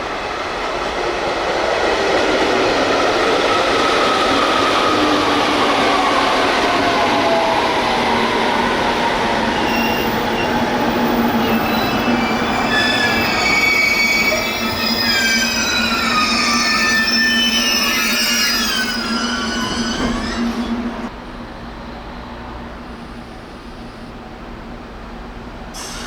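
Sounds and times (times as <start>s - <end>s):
high squealing tones: 9.6s - 21.1s.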